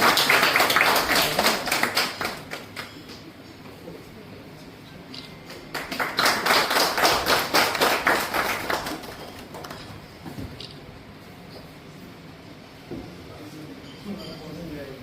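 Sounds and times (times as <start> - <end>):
audience applauding: 0.0 - 3.2, 5.4 - 10.0.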